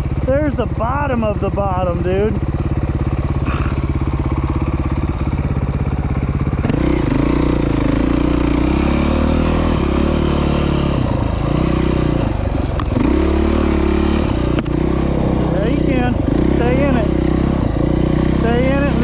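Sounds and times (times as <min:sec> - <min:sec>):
off-road vehicle engine: 0:00.0 - 0:19.0.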